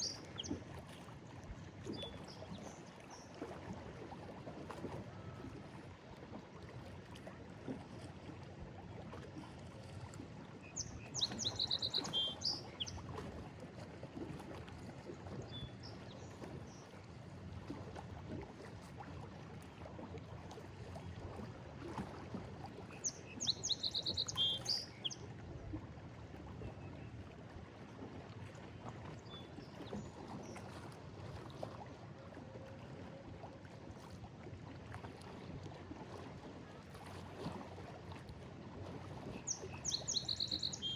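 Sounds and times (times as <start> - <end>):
bird chirping: 39.8 - 40.9.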